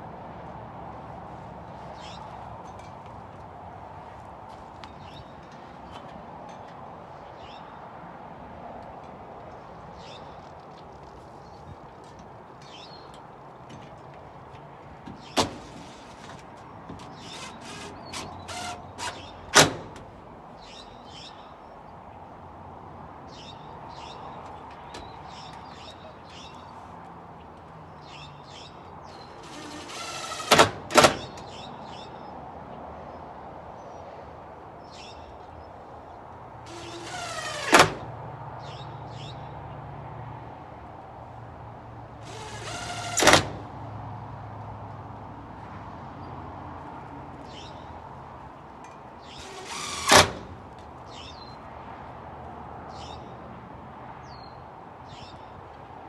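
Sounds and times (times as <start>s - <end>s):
short scraping noises: 15.1s - 20.1s, 29.1s - 31.6s, 36.7s - 38.1s, 42.2s - 43.8s, 49.2s - 51.3s.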